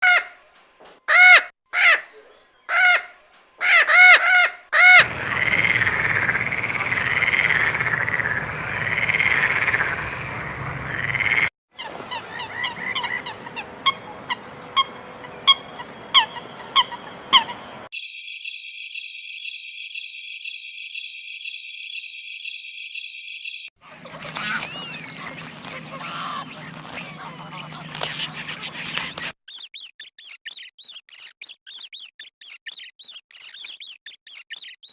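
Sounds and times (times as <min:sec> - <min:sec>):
warbling bird chorus: 0:05.0 - 0:29.7
loud pitched animal calls: 0:23.9 - 0:34.9
quick chirps: 0:23.9 - 0:34.9
high-pitched insect buzz: 0:29.5 - 0:34.9.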